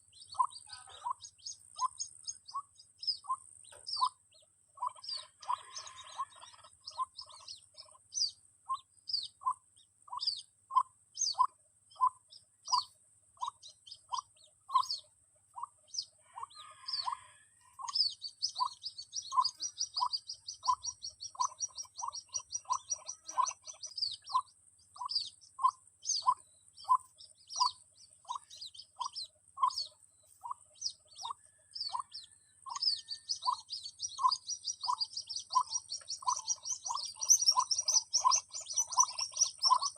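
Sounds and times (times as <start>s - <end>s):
higher bird chirps: 0.0s - 39.9s
fast twittering trill: 17.8s - 39.9s.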